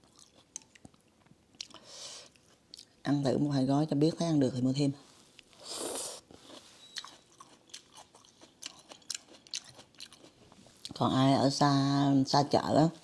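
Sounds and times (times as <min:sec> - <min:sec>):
person chewing noodle soup: 0:00.0 - 0:03.0, 0:05.4 - 0:11.0.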